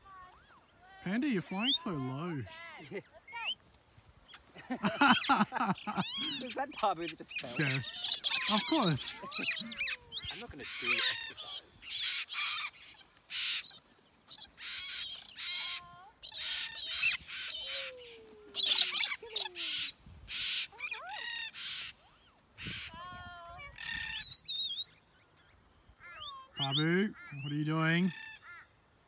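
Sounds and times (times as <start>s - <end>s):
cockatoos screeching: 4.3s - 24.8s
parrot whistle calls: 18.6s - 21.9s.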